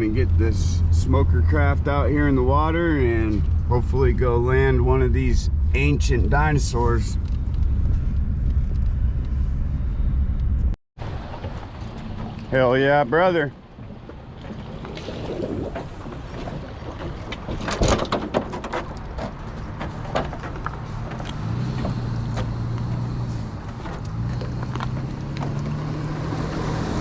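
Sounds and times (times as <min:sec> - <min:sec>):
wind on microphone: 0:14.6 - 0:18.1.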